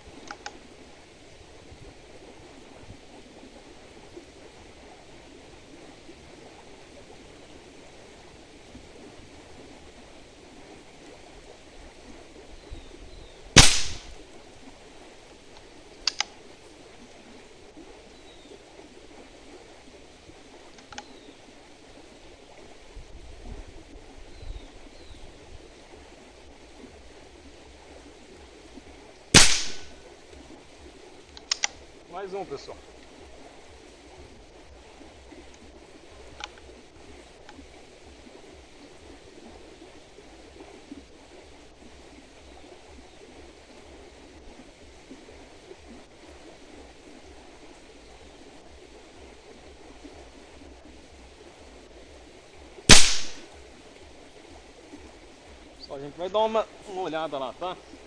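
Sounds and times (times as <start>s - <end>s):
faint outdoor background noise: 0.0s - 58.0s
sharp clicks: 13.6s - 14.1s, 16.1s - 16.3s, 29.4s - 29.9s, 31.4s - 31.8s, 52.9s - 53.4s
air rifle shot: 13.6s - 14.2s, 29.4s - 30.0s, 52.9s - 53.4s.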